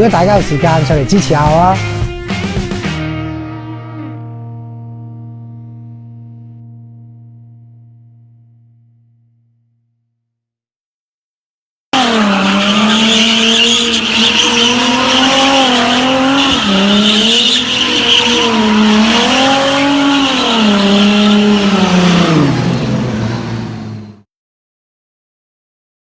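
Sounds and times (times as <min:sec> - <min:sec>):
tyres squealing: 0:12.0 - 0:21.6
turbocharged car engine revving: 0:12.0 - 0:24.2.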